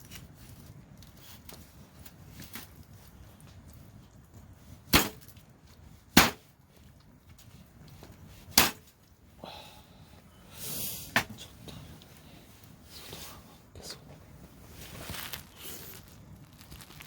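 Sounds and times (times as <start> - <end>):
blade chopping into wood: 4.9 - 5.2, 6.2 - 6.4, 8.5 - 8.9.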